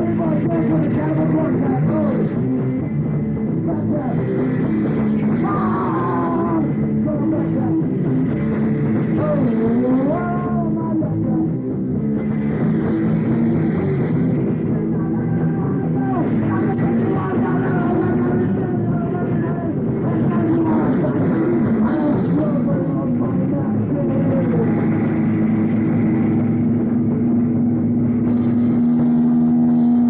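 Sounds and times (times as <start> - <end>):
rock band playing live: 0.0 - 30.0.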